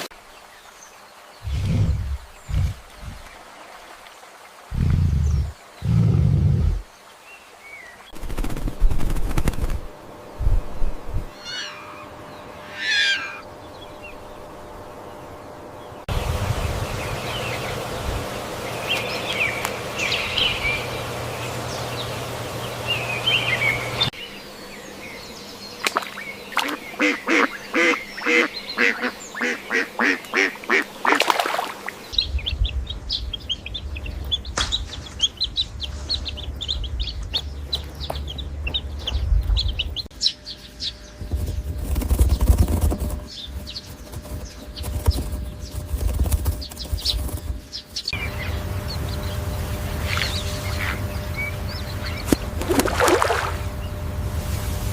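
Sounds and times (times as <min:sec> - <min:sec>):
duck quacking: 0:26.6 - 0:31.3.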